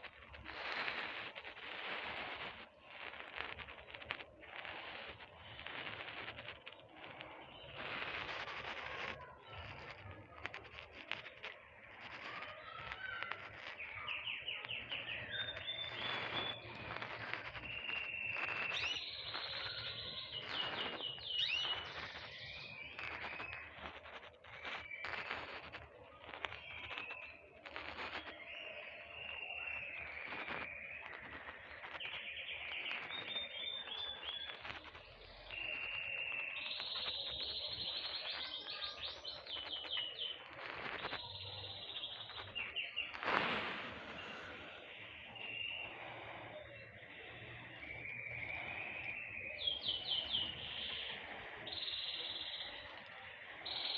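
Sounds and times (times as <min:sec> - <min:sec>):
steady hiss: 0:00.0 - 0:53.9
songbirds chirping and singing: 0:11.5 - 0:53.9.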